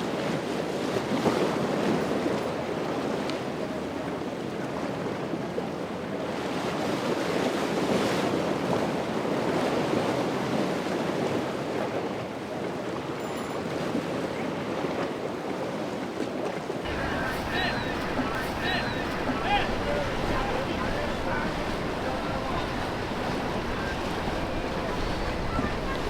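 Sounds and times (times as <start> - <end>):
ocean waves breaking: 16.9 - 26.0
wind buffeting microphone: 16.9 - 26.0.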